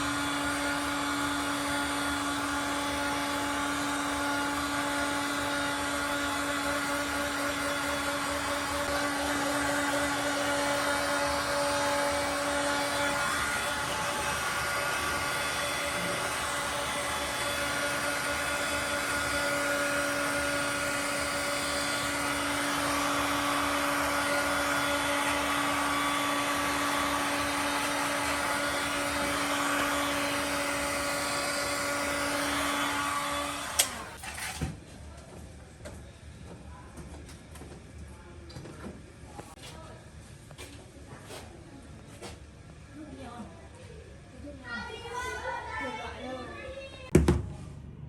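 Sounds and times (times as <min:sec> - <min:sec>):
electric motor tool whining: 0:00.0 - 0:34.3.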